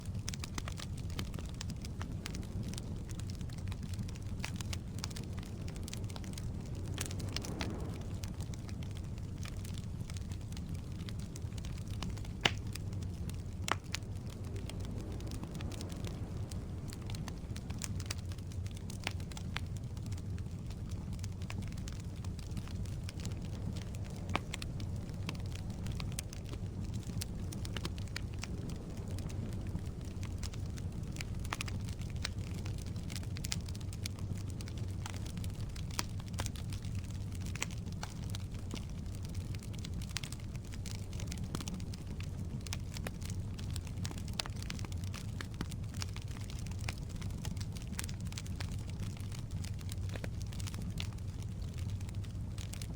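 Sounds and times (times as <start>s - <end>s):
flames rumbling: 0.0s - 52.9s
logs crackling and popping: 0.0s - 52.9s.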